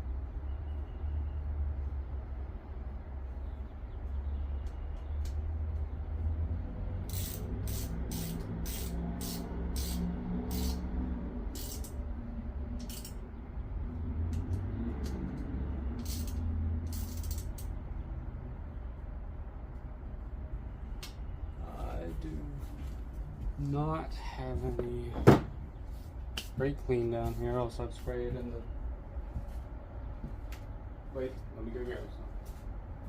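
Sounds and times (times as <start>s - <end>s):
socket ratchet clicking: 7.0s - 10.8s, 11.5s - 12.0s, 12.8s - 13.2s, 15.9s - 17.8s.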